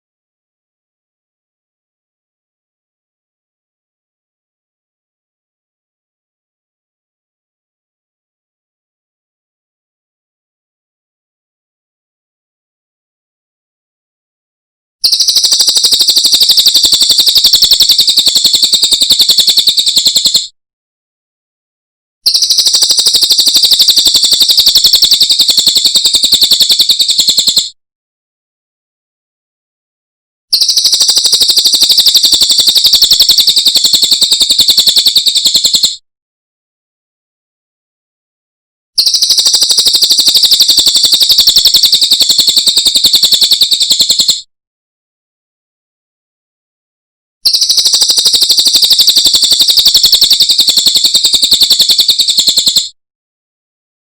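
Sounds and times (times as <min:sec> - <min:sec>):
songbird rapid trill: 0:15.0 - 0:20.5, 0:22.2 - 0:27.8, 0:30.5 - 0:36.0, 0:39.0 - 0:44.4, 0:47.4 - 0:52.9.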